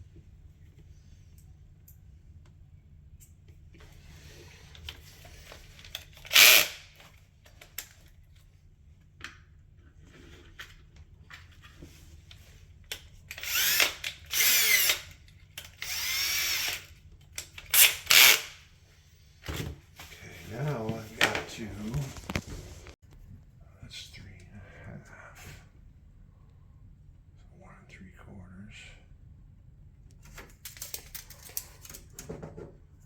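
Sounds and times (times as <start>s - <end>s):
power drill whining: 6.3s - 6.8s, 13.3s - 15.1s, 15.8s - 16.9s, 17.8s - 18.6s.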